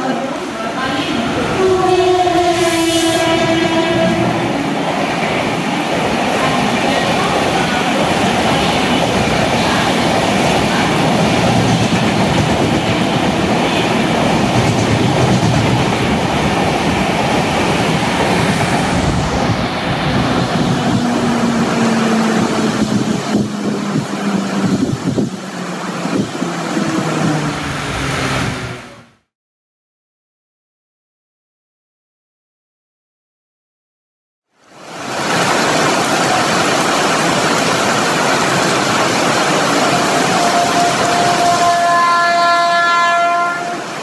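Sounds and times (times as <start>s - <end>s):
heavy rain: 0.0s - 29.1s, 34.5s - 44.0s
train wheels rumbling and clattering: 0.1s - 28.9s.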